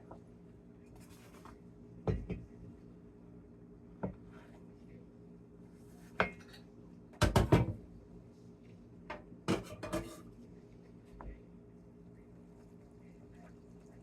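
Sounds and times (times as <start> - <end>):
dishes and utensils clinking: 9.5 - 10.3.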